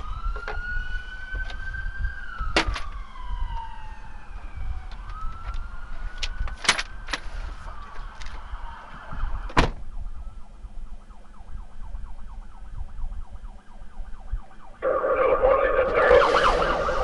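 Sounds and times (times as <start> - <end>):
police siren: 0.0 - 17.0
loud burst of sound: 14.8 - 17.0.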